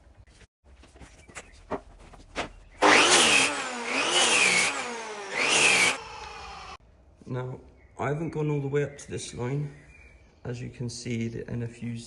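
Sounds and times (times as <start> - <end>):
power cutter cutting wood: 2.8 - 6.8.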